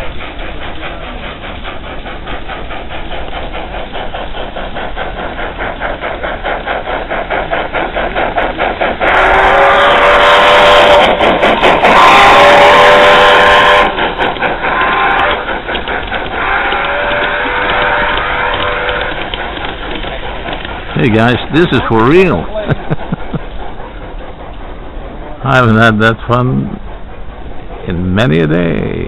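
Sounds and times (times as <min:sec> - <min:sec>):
train wheels clattering: 0:00.0 - 0:29.0
multi-tone train horn blasts: 0:09.1 - 0:11.0, 0:11.9 - 0:14.0, 0:16.4 - 0:19.2.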